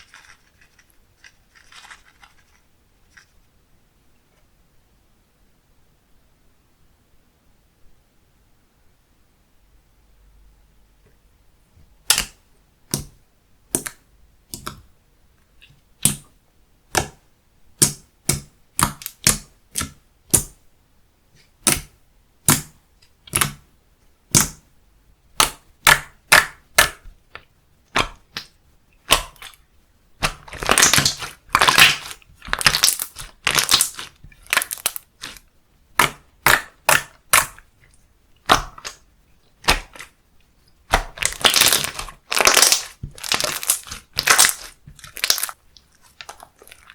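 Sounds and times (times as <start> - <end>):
slime crackling: 0.0 - 3.3, 27.9 - 29.6, 30.2 - 40.2, 40.9 - 46.9
slime popping and clicking: 23.3 - 23.6, 29.1 - 29.6, 30.2 - 35.4, 36.0 - 37.6, 38.4 - 39.0, 39.6 - 40.1, 40.9 - 46.8.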